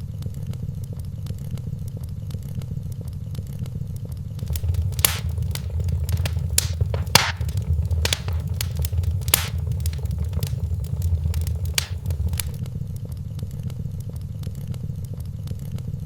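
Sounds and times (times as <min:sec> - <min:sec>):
low steady rumble: 0:04.4 - 0:12.6
wood fire crackling: 0:04.4 - 0:12.6.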